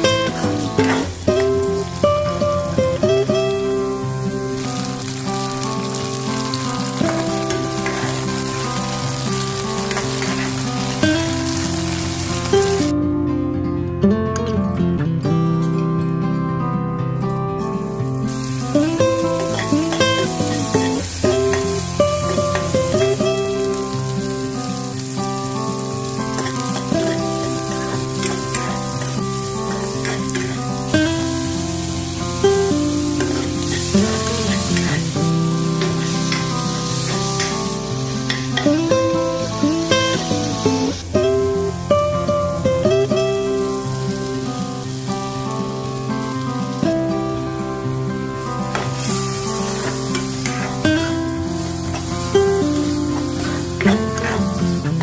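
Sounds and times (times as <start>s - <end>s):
potatoes sizzling in hot oil: 0.0s - 13.0s, 17.6s - 55.0s
gentle guitar music: 0.0s - 55.0s.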